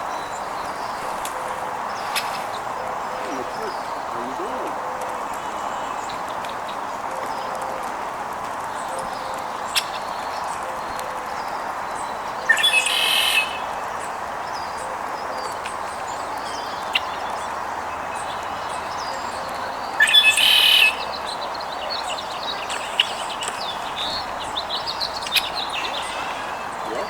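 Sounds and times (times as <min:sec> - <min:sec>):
harsh bird calls: 0:00.0 - 0:06.4, 0:18.1 - 0:27.0
steady background hiss: 0:00.0 - 0:07.0
small birds chirping: 0:00.0 - 0:27.0.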